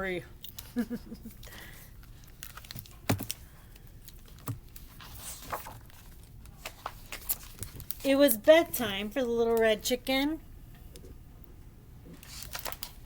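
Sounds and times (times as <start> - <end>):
pages turning: 2.0 - 3.4, 4.0 - 8.1, 12.2 - 13.0.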